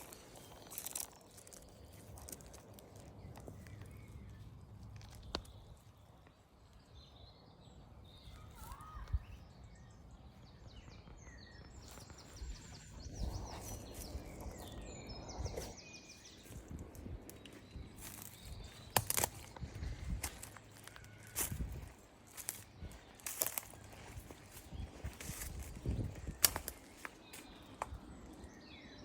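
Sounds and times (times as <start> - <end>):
small birds singing: 0.0 - 29.0.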